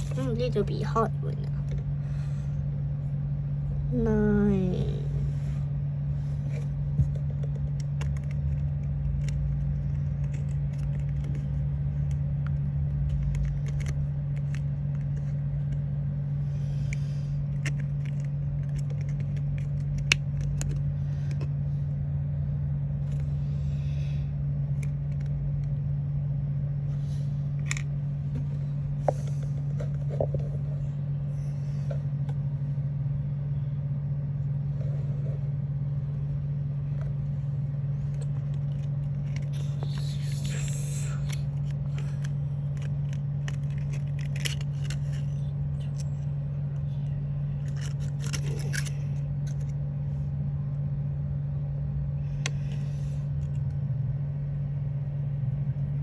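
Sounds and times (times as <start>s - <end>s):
low hum: 0.0s - 56.0s
craft materials clicking and rustling: 41.2s - 46.1s.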